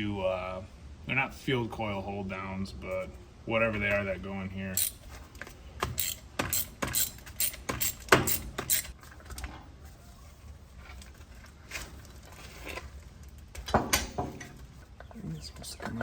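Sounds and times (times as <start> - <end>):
small metal parts clicking: 4.8 - 5.0, 5.9 - 9.0.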